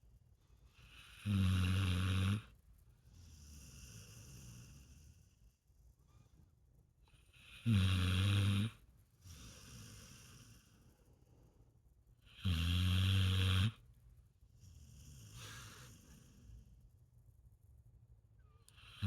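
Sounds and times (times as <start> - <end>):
dog snoring: 0.7 - 5.4, 7.1 - 11.0, 12.2 - 13.8, 14.6 - 16.8, 18.7 - 19.0
dog breathing: 3.0 - 5.7, 9.2 - 11.8, 14.5 - 17.0.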